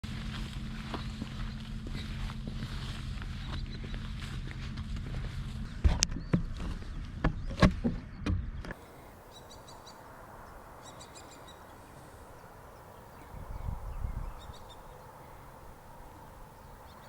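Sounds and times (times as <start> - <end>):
footsteps crunching on a trail: 0.0 - 7.9
quiet outdoor ambience: 0.0 - 17.0
faint bird chirps: 8.7 - 17.0.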